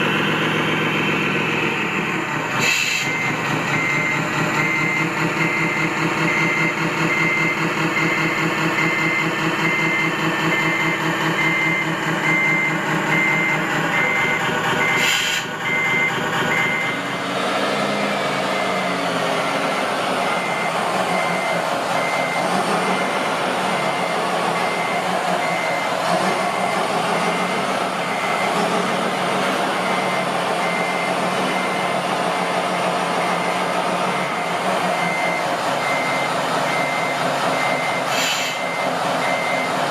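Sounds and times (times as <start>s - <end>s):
diesel engine chugging: 0.0s - 39.9s
reversing alarm beeping: 2.7s - 17.1s, 18.4s - 32.4s, 33.1s - 39.9s.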